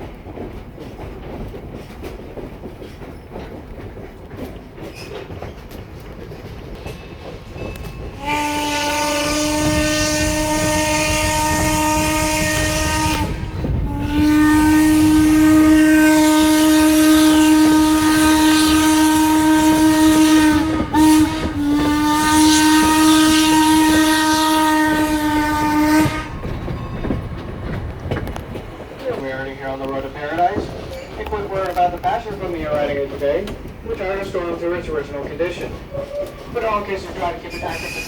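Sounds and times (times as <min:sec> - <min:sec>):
train rumbling on rails: 0:00.0 - 0:38.0
steam locomotive whistle: 0:08.1 - 0:26.8, 0:37.5 - 0:38.0.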